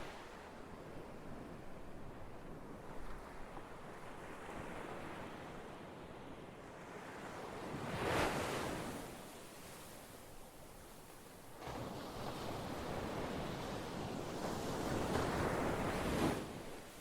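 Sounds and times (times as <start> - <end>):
ocean surf washing: 11.6 - 17.0.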